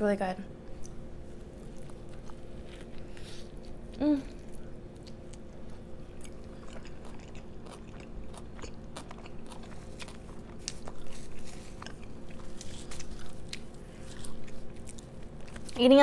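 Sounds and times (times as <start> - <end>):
faint steady hum: 0.0 - 16.0
chewing crunchy food: 0.7 - 16.0.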